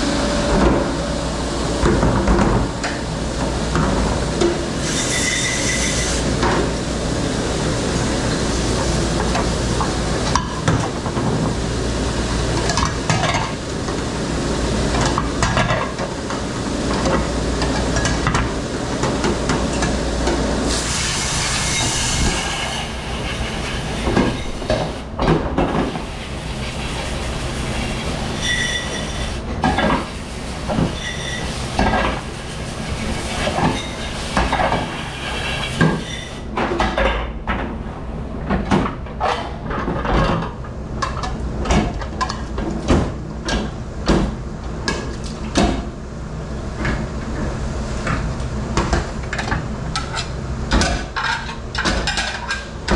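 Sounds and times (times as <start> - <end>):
machine rumble: 0.0 - 4.8.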